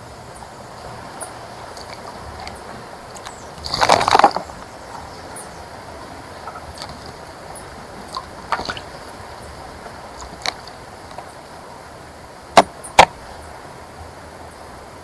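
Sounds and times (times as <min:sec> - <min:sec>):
bird splashing in bird bath: 0:00.8 - 0:11.3.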